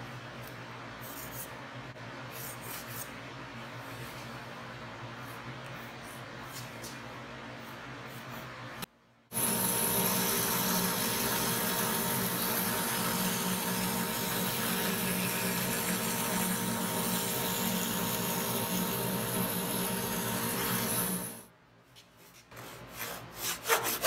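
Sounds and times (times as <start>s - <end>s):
bandsaw running: 9.3s - 21.4s.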